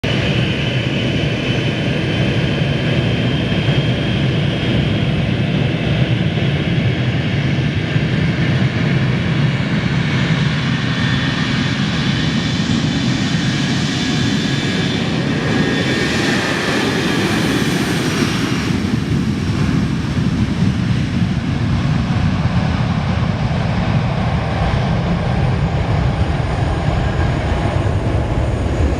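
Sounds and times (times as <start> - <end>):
airliner engines taking off: 0.0 - 28.9.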